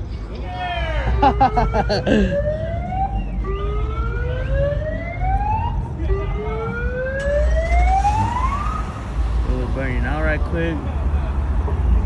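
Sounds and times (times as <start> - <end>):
siren rising sweeps: 1.1 - 9.5.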